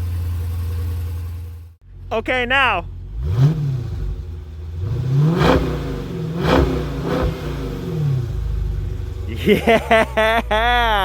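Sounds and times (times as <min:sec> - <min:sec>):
car engine revving: 0:02.9 - 0:11.0.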